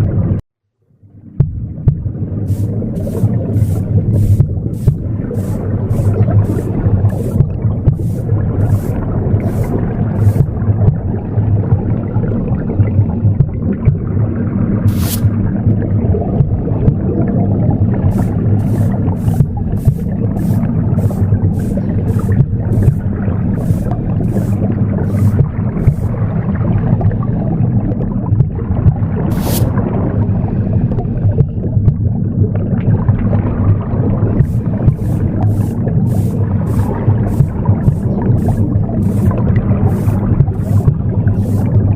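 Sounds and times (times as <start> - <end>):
pulsing womb sound whoosh: 1.4 - 11.2, 18.0 - 26.5, 34.4 - 41.9
broom sweeping swishes: 2.5 - 10.6, 14.9 - 15.4, 18.1 - 26.2, 29.3 - 29.8, 34.4 - 41.9.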